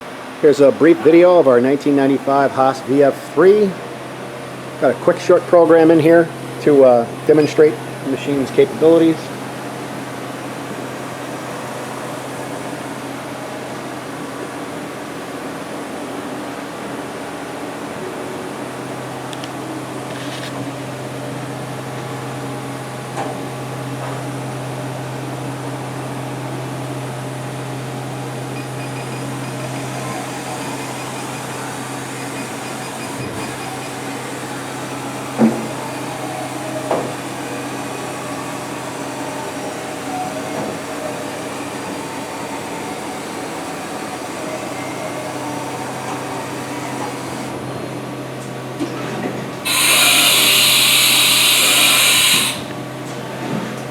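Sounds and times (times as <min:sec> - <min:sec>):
machine hum with held tones: 0:26.0 - 0:40.0, 0:49.7 - 0:52.8.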